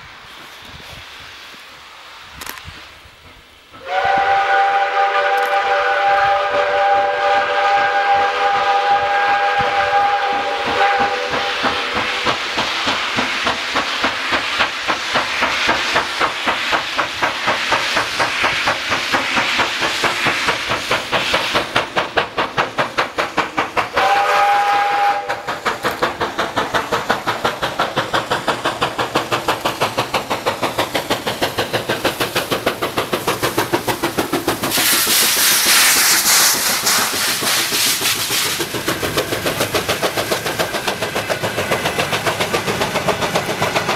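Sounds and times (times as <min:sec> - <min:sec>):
loud hiss of steam: 0:00.0 - 0:43.9
steam locomotive exhaust chuffs: 0:00.0 - 0:43.9
steam whistle: 0:03.8 - 0:12.3, 0:24.0 - 0:25.5.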